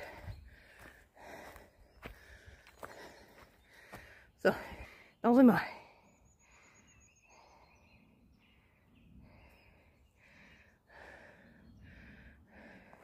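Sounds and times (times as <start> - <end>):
person breathing: 0.0 - 5.2, 5.8 - 8.1, 8.7 - 13.0
bird trill: 6.0 - 10.0.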